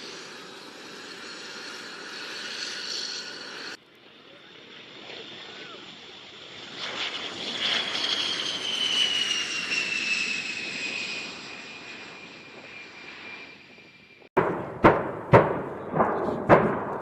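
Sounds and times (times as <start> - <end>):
jet aircraft passing: 0.0 - 17.0
sharp bang: 14.4 - 17.0.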